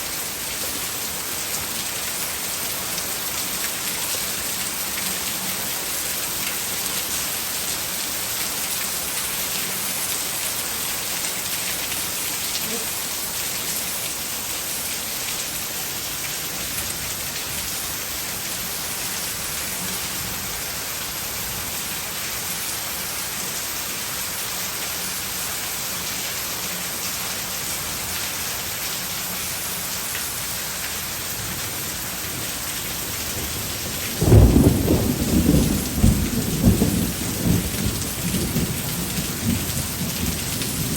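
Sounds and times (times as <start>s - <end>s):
heavy rain falling: 0.0s - 40.9s
low rumble of thunder: 33.4s - 40.9s.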